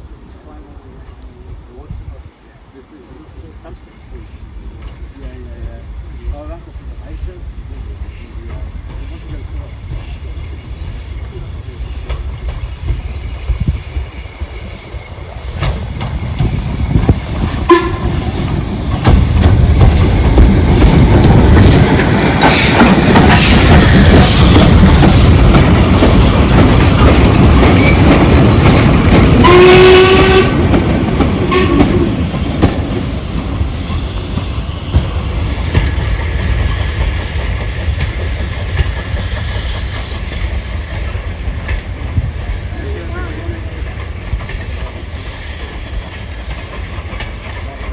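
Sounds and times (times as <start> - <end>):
steam train passing: 0.0 - 47.9
steam whistle: 17.6 - 18.2, 29.4 - 30.6, 31.5 - 32.0.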